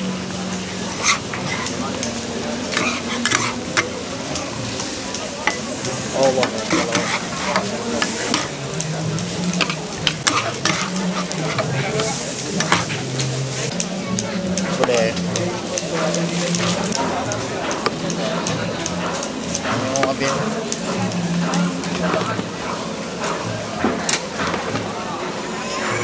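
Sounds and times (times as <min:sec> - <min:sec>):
food sizzling in a pan: 0:00.0 - 0:14.0
metal spatula clinking on pan: 0:06.4 - 0:12.9.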